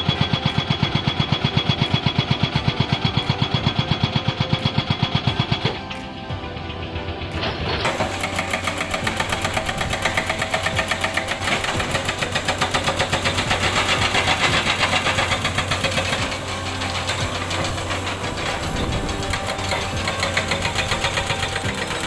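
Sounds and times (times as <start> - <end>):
excavator engine running: 0.0 - 22.0
hydraulic breaker hammering rock: 7.5 - 22.0.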